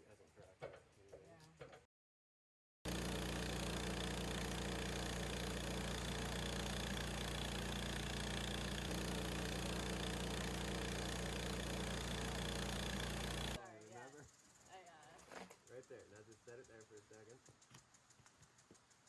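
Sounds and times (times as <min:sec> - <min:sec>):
gas engine running steadily: 0:02.9 - 0:13.6.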